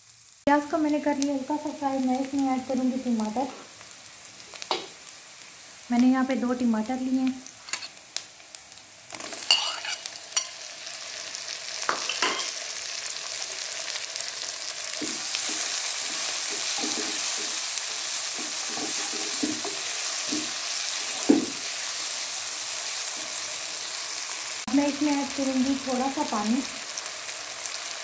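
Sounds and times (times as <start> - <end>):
vegetables sizzling in hot oil: 0.0 - 28.0
spatula scraping a pan: 7.6 - 8.0, 9.2 - 10.6, 15.0 - 21.6
spatula knocking on a pan: 21.2 - 21.6.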